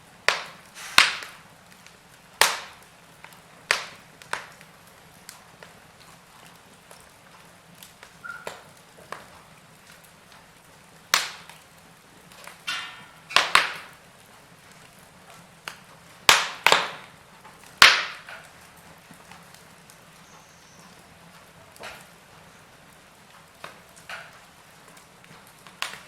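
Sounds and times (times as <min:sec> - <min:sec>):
wood fire crackling: 0:00.0 - 0:26.0
sharp loud fire pops: 0:00.3 - 0:01.4, 0:02.4 - 0:02.8, 0:03.7 - 0:04.5, 0:11.1 - 0:11.5, 0:12.5 - 0:14.0, 0:16.3 - 0:17.1, 0:17.8 - 0:18.4
short fire hiss: 0:00.7 - 0:01.4.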